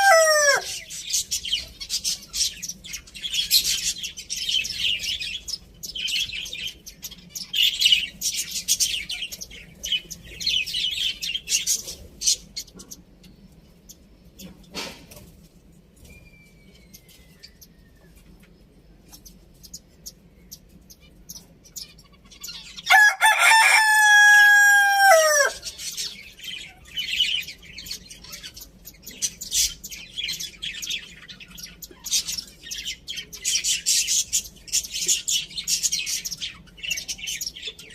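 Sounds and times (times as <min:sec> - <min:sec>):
rooster crowing: 0:00.0 - 0:00.9, 0:22.9 - 0:25.7
small birds chirping: 0:00.0 - 0:37.9.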